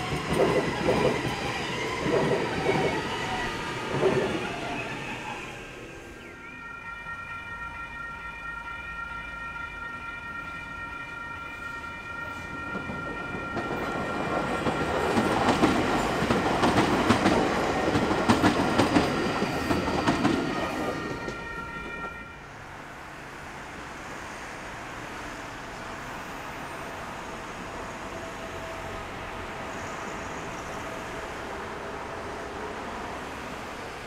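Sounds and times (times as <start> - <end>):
train wheels clacking over rail joints: 0.0 - 4.6, 12.7 - 22.2
electric train passing: 0.0 - 34.0.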